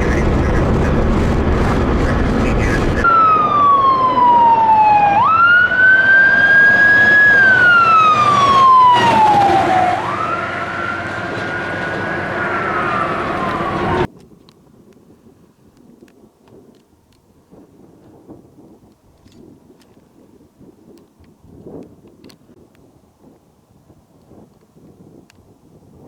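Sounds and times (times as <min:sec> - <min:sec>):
emergency siren wailing: 0:00.0 - 0:14.1.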